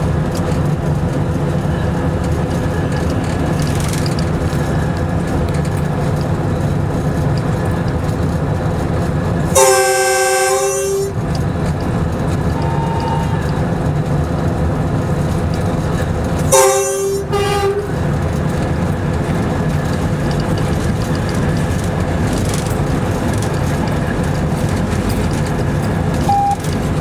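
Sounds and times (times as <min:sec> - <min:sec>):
locomotive engine drone: 0:00.0 - 0:27.0
train horn blasts: 0:09.5 - 0:11.5, 0:12.4 - 0:13.8, 0:16.5 - 0:18.2, 0:26.2 - 0:26.6
high beep: 0:26.3 - 0:26.7.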